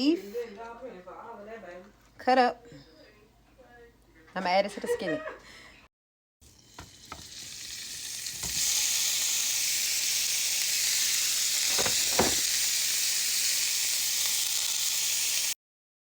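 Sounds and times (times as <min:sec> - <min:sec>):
beef sizzling in a skillet: 0:06.4 - 0:15.6
short knocks: 0:11.7 - 0:12.4.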